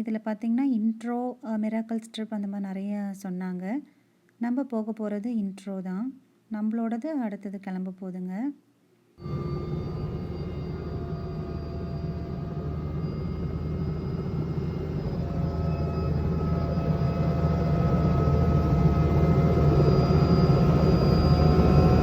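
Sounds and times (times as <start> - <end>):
helicopter running: 9.2 - 22.0.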